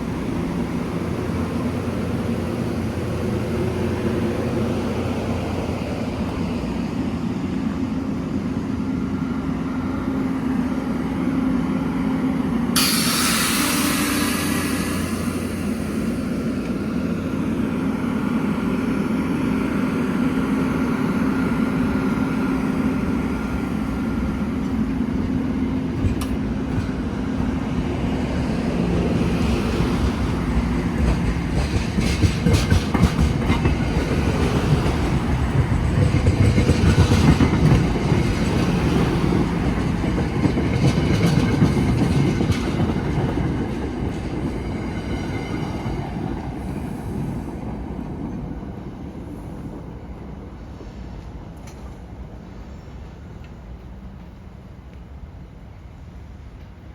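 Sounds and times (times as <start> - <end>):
train hum: 0.0 - 56.9
train wheels clacking: 12.8 - 16.9, 24.0 - 48.5.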